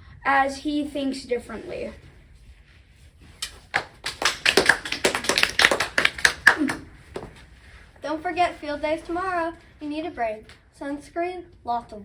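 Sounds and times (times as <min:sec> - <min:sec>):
people clapping: 0:03.4 - 0:07.4.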